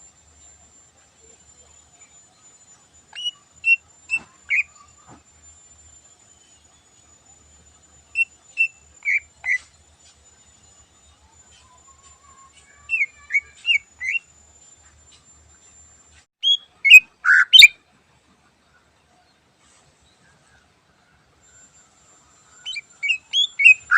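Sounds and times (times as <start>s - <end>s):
bird whistling song: 2.0s - 5.0s, 8.1s - 9.8s, 11.5s - 14.3s, 16.4s - 17.8s, 22.4s - 23.9s.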